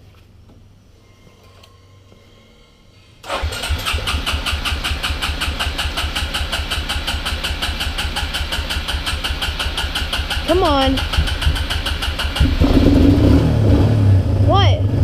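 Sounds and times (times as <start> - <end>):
atv engine starting and idling: 3.2 - 14.4.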